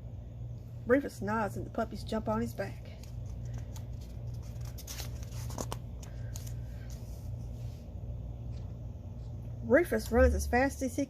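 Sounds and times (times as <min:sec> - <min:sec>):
steady low hum: 0:00.0 - 0:11.0
book pages rustling: 0:02.7 - 0:07.8.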